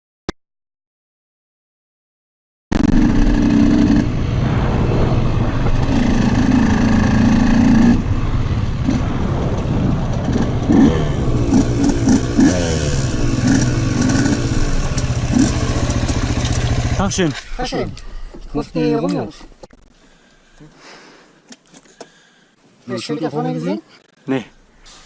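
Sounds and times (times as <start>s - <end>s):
motorcycle engine running and revving: 2.8s - 4.2s, 5.6s - 17.2s.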